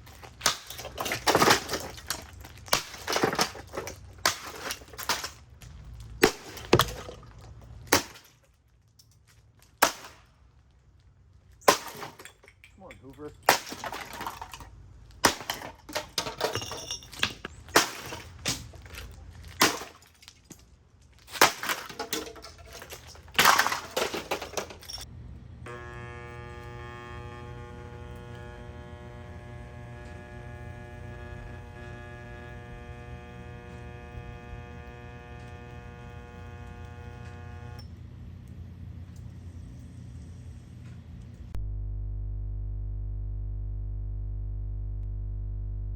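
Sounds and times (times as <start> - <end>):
plastic vacuum body being smashed: 0.0 - 5.4, 6.2 - 8.4, 13.5 - 16.6, 21.2 - 24.9
steady multi-pitch tone: 25.7 - 37.8.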